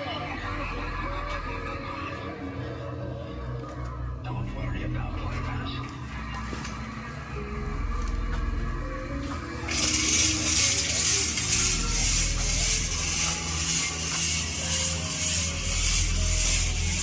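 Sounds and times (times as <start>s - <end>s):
faint music: 0.0s - 17.0s
steady low hum: 0.0s - 17.0s
rhythmic hissing: 6.8s - 17.0s.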